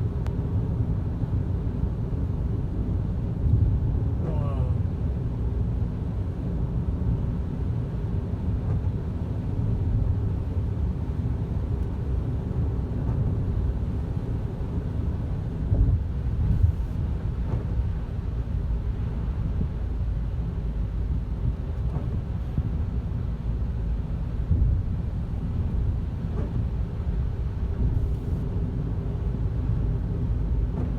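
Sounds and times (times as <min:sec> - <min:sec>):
car road and engine rumble: 0:00.0 - 0:30.9.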